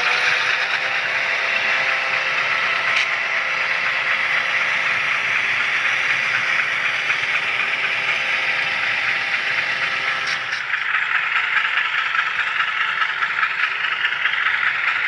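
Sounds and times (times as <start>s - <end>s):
faint motor hum: 0.0s - 10.8s
model train wheels on rail: 0.0s - 15.0s.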